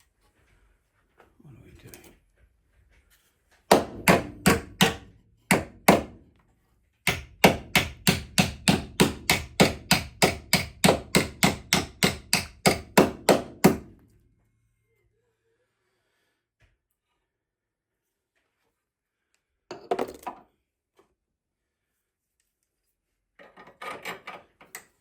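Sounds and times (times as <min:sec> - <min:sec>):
hammer striking metal: 0:03.7 - 0:06.1, 0:07.1 - 0:13.9.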